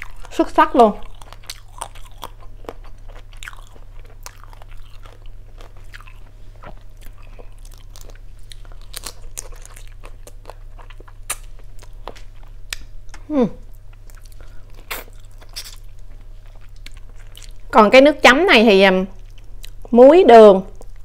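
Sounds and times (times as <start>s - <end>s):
person chewing crunchy shrimp: 0.0s - 0.4s, 1.0s - 17.7s, 19.2s - 19.9s
wet mouth sounds: 14.2s - 15.8s.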